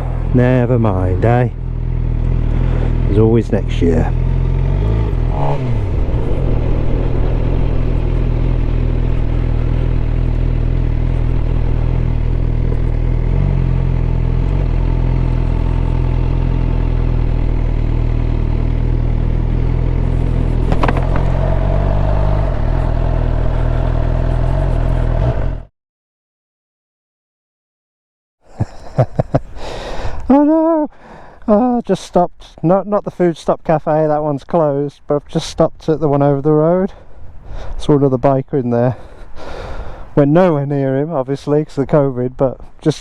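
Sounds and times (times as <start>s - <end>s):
motorcycle engine running: 0.0s - 25.6s.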